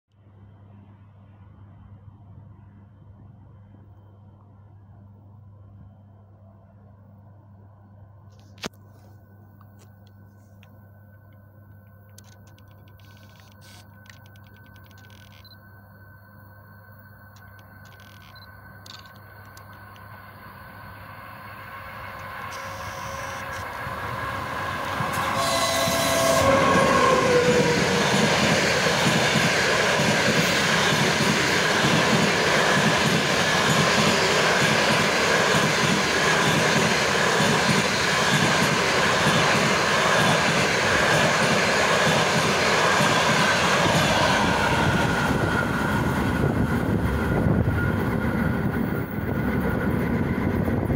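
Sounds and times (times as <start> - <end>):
train wheels rumbling and clattering: 22.1 - 50.9.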